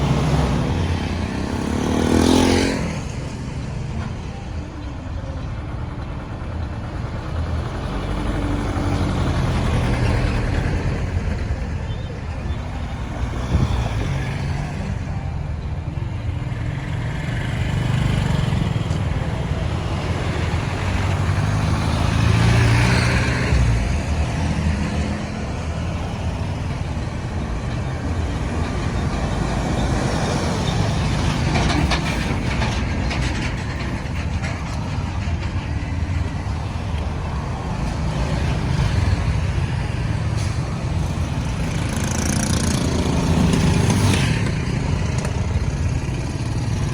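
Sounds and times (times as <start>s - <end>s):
vehicle passing loudly: 0.0s - 3.2s, 16.7s - 33.2s
road traffic engines: 0.0s - 46.9s.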